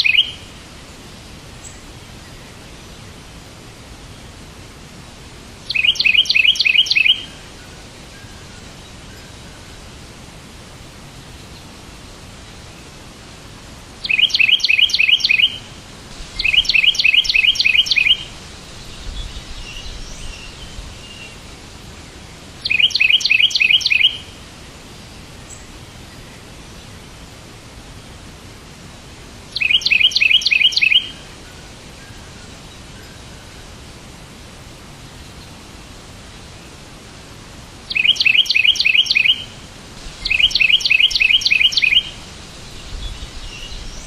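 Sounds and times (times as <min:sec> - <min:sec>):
songbird chirping: 0:00.0 - 0:03.4, 0:05.6 - 0:10.0, 0:14.0 - 0:27.2, 0:29.3 - 0:33.9, 0:37.8 - 0:44.0
steady hiss: 0:00.0 - 0:44.0.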